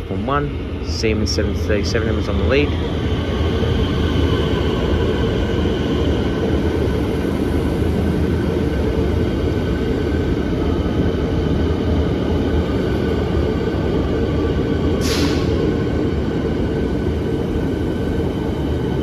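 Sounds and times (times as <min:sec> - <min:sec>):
electric train pulling in: 0:00.0 - 0:19.0.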